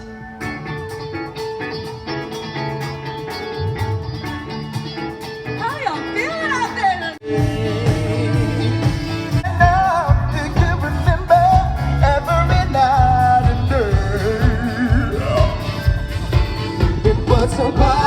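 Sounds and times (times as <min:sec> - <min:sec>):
live pop-rock band: 0:00.0 - 0:18.0
person singing with vibrato: 0:07.0 - 0:18.0.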